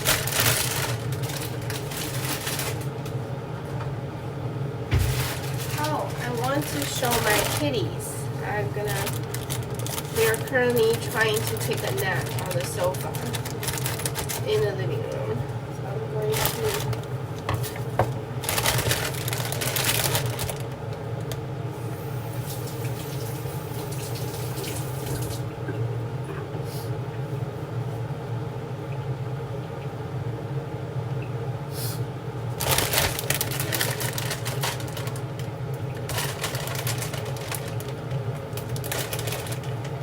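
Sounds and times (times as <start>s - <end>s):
rustling handling noise: 0.0s - 4.0s, 4.9s - 21.4s, 32.6s - 40.0s
steady low hum: 0.0s - 40.0s.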